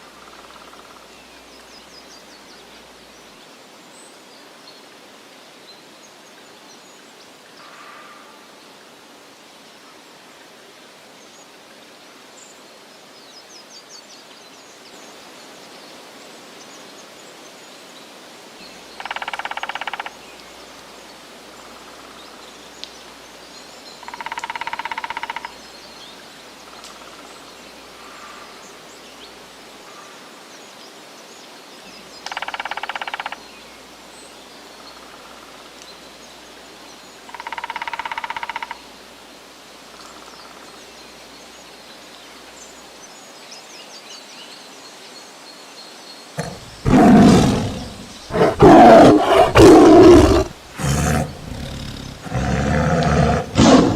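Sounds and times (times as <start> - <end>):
harsh animal call: 46.4 - 53.9.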